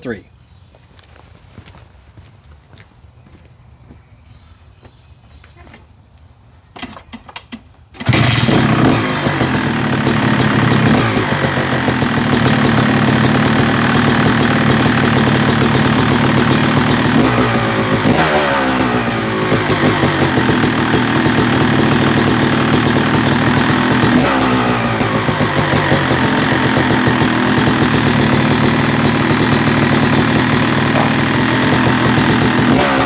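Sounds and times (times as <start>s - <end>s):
two-stroke engine revving: 8.0s - 33.0s.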